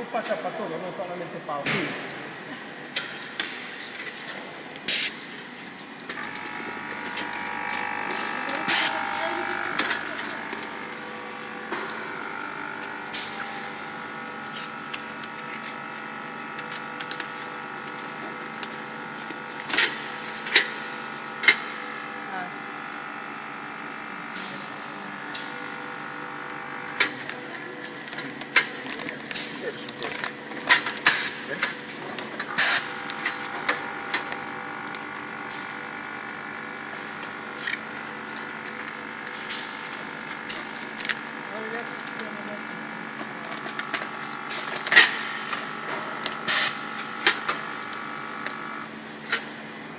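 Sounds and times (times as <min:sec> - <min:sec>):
filling machine humming: 0:04.5 - 0:49.9
filling machine drone: 0:06.1 - 0:19.1.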